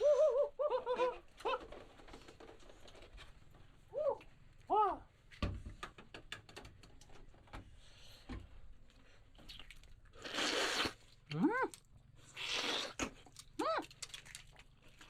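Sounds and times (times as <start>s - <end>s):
small animal squealing: 12.3s - 13.0s.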